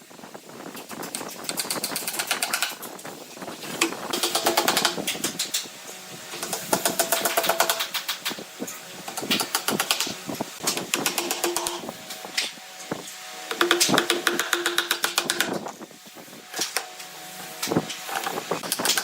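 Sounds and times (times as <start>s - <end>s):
rapid mechanical clicking: 0.8s - 3.0s, 3.8s - 5.7s, 6.4s - 8.4s, 9.0s - 12.5s, 13.5s - 15.7s, 17.6s - 19.0s.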